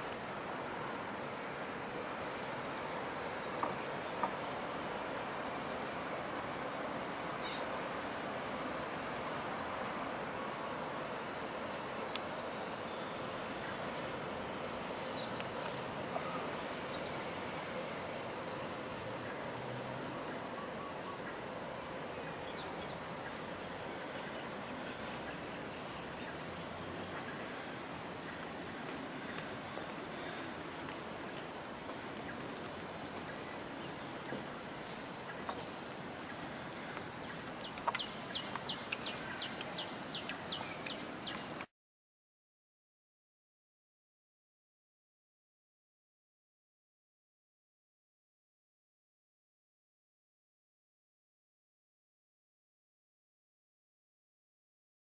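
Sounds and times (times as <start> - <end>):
insect-like drone: 0.0 - 41.7
outdoor background hiss: 0.0 - 41.7.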